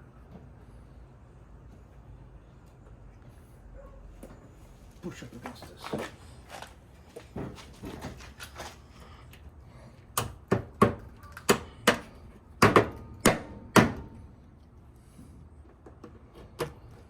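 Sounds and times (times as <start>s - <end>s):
light handling noises: 4.2s - 9.5s.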